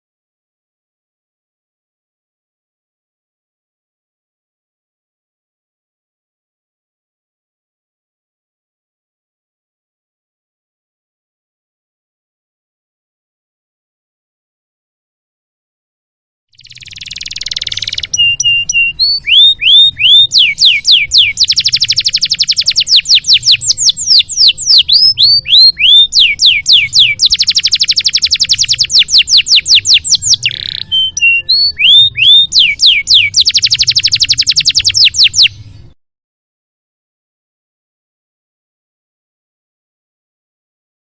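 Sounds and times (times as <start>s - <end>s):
canary singing: 16.6s - 35.9s.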